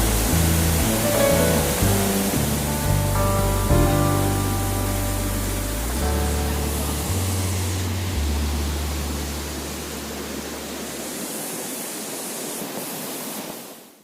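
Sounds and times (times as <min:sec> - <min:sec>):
low background music: 0:00.0 - 0:10.8
rushing water: 0:00.0 - 0:14.0.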